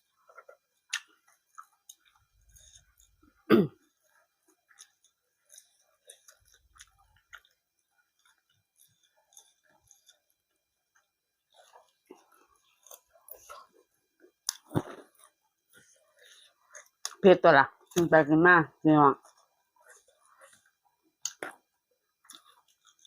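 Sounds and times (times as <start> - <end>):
person chewing food: 0.0 - 17.2, 19.2 - 23.0.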